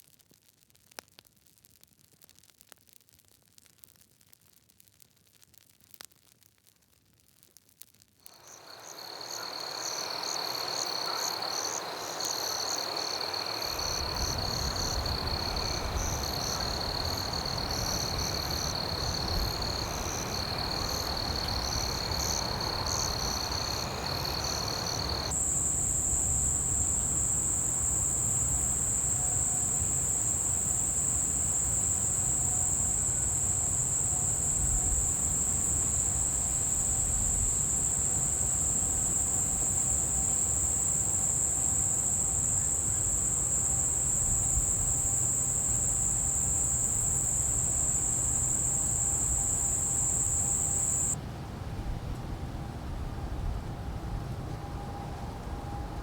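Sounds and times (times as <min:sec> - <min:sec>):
frogs and insects calling: 0:08.3 - 0:51.2
loud high cricket trill: 0:08.3 - 0:51.2.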